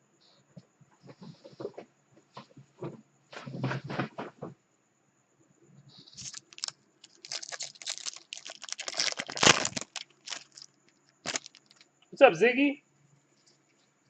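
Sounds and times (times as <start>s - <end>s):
packaging crinkling and crackling: 6.1s - 11.8s.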